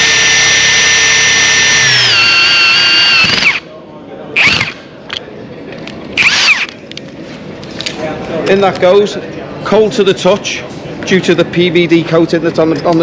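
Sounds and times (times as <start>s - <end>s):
short motor whirs: 0.0s - 3.6s, 4.4s - 4.8s, 6.2s - 6.8s
impact wrench drilling steel: 0.0s - 3.7s, 4.4s - 4.8s, 6.2s - 6.7s.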